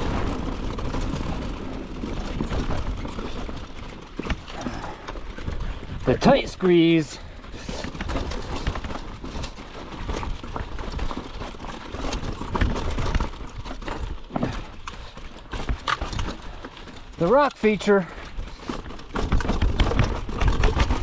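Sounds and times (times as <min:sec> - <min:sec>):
wind rumbling on microphone: 0:00.0 - 0:06.3
bike frame clattering: 0:00.0 - 0:21.0
tyres crunching on dirt: 0:00.0 - 0:21.0.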